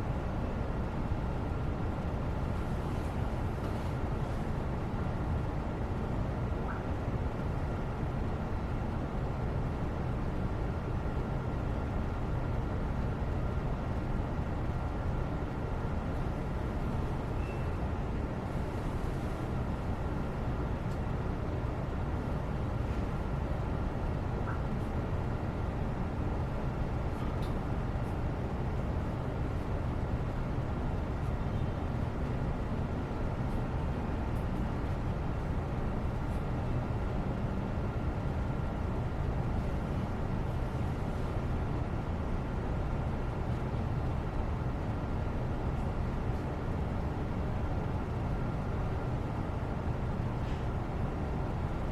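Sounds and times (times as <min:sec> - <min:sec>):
low background rumble: 0:00.0 - 0:51.9
faint light ticks: 0:20.9 - 0:21.1, 0:27.2 - 0:28.2.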